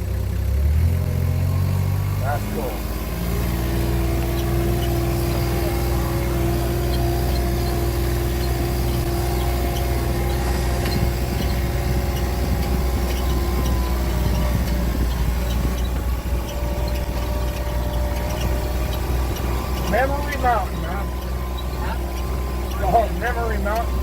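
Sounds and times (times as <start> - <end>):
vehicle engine running steadily: 0.0 - 24.0.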